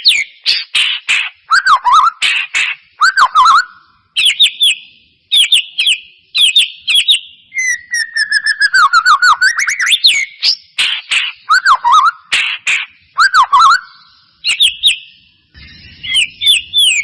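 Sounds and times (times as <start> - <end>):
bird singing whistled notes: 0.0 - 17.0
bird clicks: 10.8 - 11.4.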